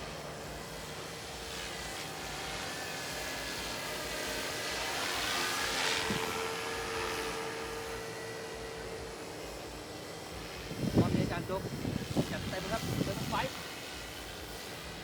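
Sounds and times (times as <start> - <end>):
model airplane motor flying past: 0.0 - 15.0.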